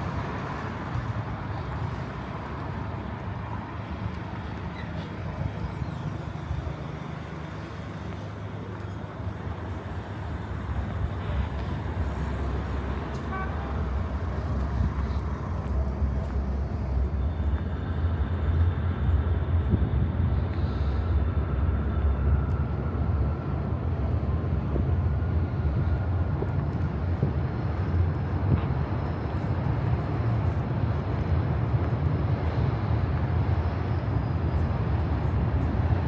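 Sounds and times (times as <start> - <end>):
city road traffic rumble: 0.0 - 36.0.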